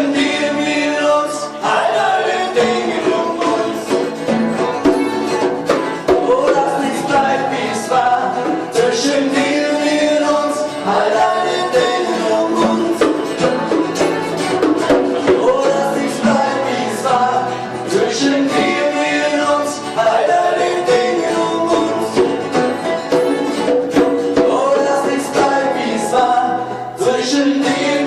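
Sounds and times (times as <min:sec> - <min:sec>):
band playing a song: 0:00.0 - 0:28.0
person singing: 0:00.0 - 0:28.0
steady drum beat: 0:02.6 - 0:07.4, 0:11.8 - 0:16.7, 0:20.9 - 0:26.2.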